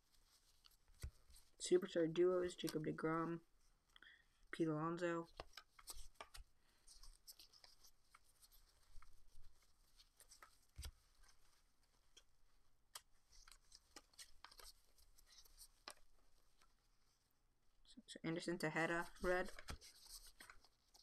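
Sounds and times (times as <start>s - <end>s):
trading cards clicking and swishing: 5.3s - 6.4s, 13.0s - 16.1s.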